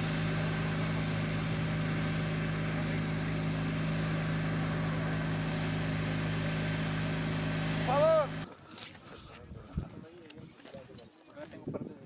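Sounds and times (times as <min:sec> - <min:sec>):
engine drone with hiss: 0:00.0 - 0:08.5.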